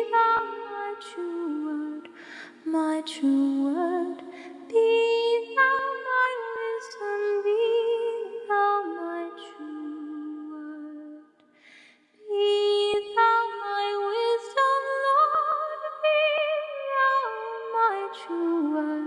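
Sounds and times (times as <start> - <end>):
short breath: 2.1 - 2.6, 11.4 - 12.2.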